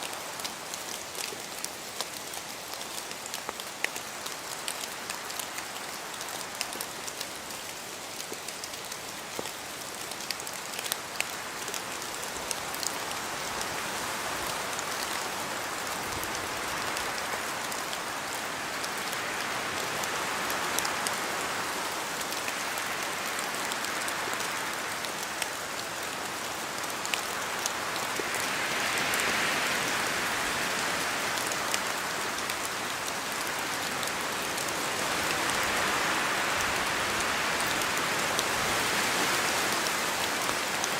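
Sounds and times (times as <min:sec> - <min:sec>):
drops ticking on leaves: 0:00.0 - 0:13.8
rain falling in a forest: 0:00.0 - 0:40.9
wind through trees: 0:00.0 - 0:40.9.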